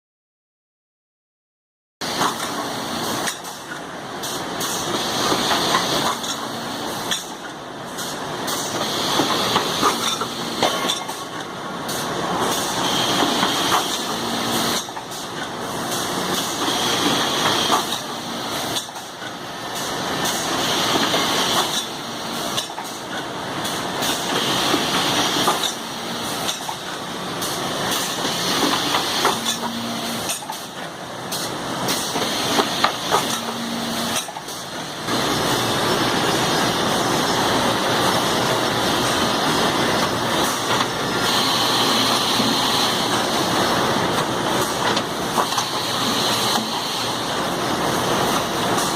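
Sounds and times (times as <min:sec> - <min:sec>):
drilling machine hiss: 0:41.2 - 0:43.2.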